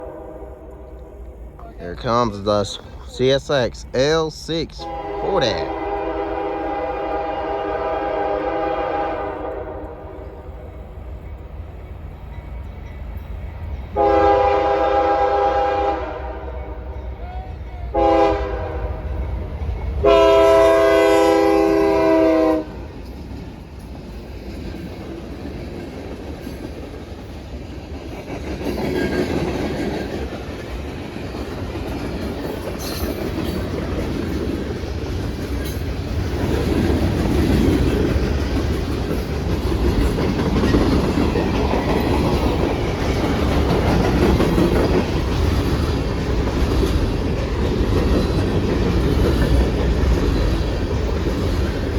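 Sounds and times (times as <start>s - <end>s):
locomotive air horn blast: 0.0s - 1.2s, 4.8s - 10.3s, 14.0s - 16.8s, 17.9s - 19.0s, 20.0s - 22.7s
train rumbling past on rails: 0.0s - 51.9s.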